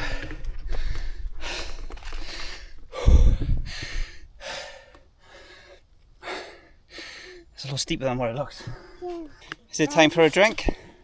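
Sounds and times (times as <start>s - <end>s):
person panting: 0.0s - 7.6s
wind gust on microphone: 3.0s - 4.1s.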